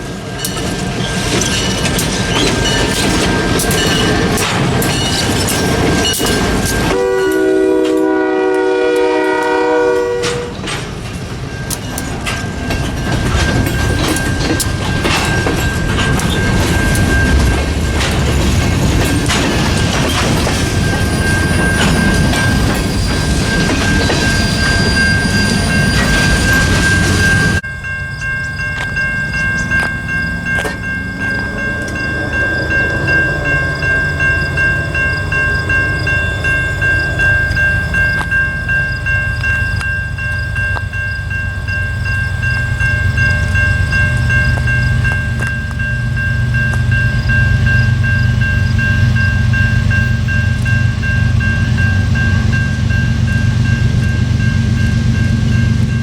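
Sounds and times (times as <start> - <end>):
diesel locomotive rumble: 0.0 - 56.0
freight train rolling past: 0.0 - 56.0
high ringing tone: 19.0 - 56.0.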